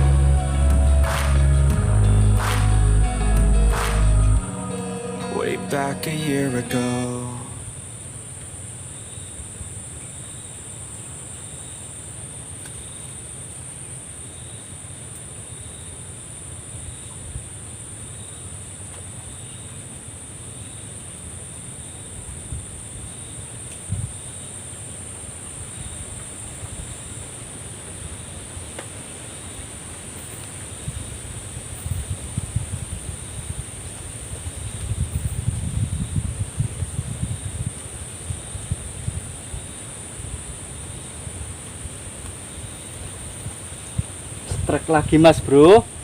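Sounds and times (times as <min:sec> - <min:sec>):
insects chirring: 0:04.5 - 0:46.0
wind rumble on microphone: 0:23.8 - 0:24.2, 0:30.8 - 0:40.6.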